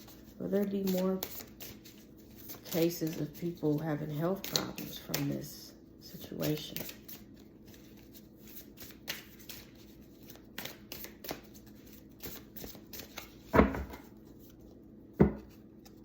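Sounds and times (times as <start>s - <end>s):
cards being shuffled: 0.0s - 5.4s, 6.3s - 14.8s
card deck knocking: 13.6s - 14.1s, 15.2s - 15.5s.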